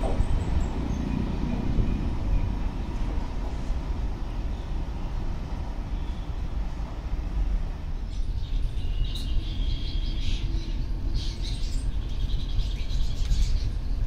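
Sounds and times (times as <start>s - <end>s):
steady low rumble: 0.0s - 14.0s
small birds chirping: 7.9s - 14.0s.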